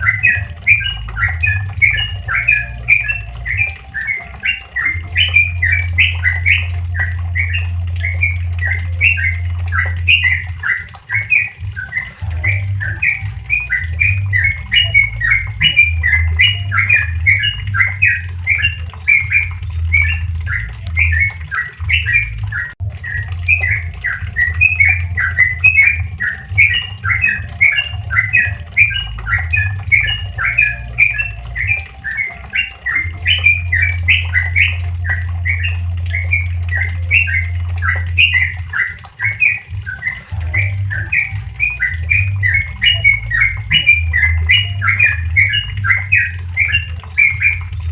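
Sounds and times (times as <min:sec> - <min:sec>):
bulbul singing bubbly notes: 0:00.0 - 0:47.9.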